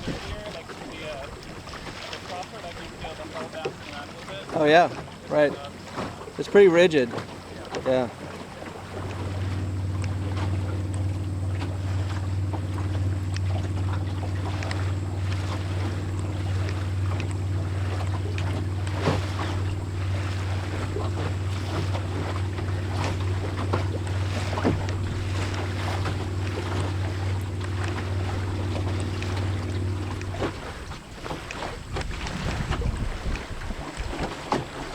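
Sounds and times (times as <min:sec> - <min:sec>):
wind on microphone: 0:00.0 - 0:00.5, 0:08.8 - 0:34.9
steady low hum: 0:00.0 - 0:34.9
water splashing against boat hull: 0:00.0 - 0:34.9.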